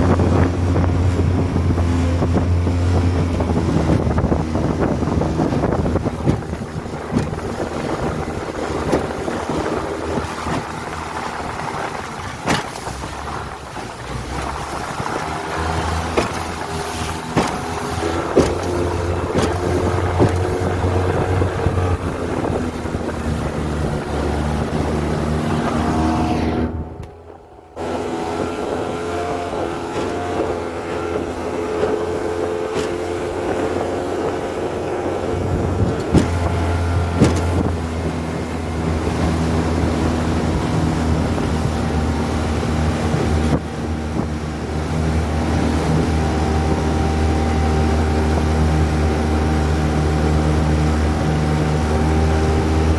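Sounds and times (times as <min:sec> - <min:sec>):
outboard motor running: 0:00.0 - 0:52.9
wind on microphone: 0:00.0 - 0:52.9
sharp knocks: 0:16.0 - 0:20.7, 0:36.0 - 0:37.7.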